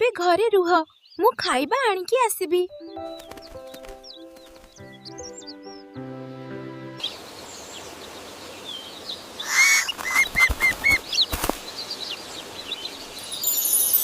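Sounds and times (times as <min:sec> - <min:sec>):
small birds chirping: 0:00.0 - 0:14.0
bird wings flapping: 0:03.1 - 0:05.0, 0:09.6 - 0:11.8
short arched bird calls: 0:09.4 - 0:11.4.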